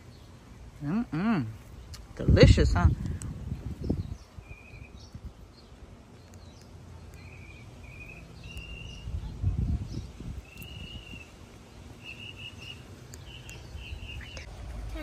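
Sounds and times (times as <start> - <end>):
low outdoor background: 0.0 - 15.0
bird chirping and trilling: 3.5 - 14.5.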